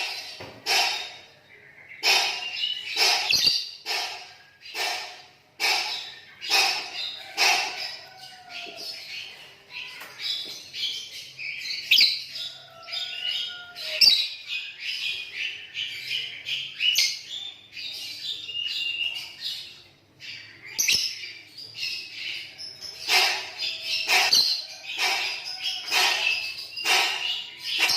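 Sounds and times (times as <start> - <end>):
lovebird squawks: 0.0 - 1.2, 2.0 - 8.2, 23.0 - 27.9
lovebird chirping and trilling: 2.0 - 8.2, 8.9 - 27.9.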